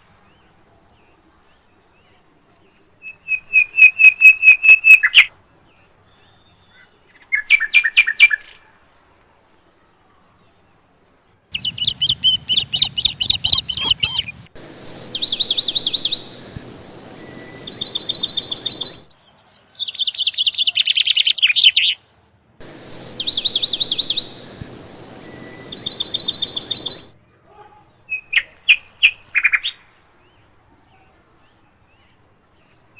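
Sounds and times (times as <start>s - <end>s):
small birds chirping in trills: 10.3s - 27.2s.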